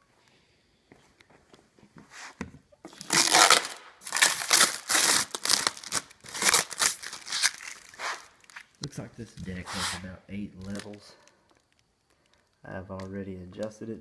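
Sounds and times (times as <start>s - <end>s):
packaging crinkling and rustling: 2.9s - 9.9s, 10.5s - 13.1s.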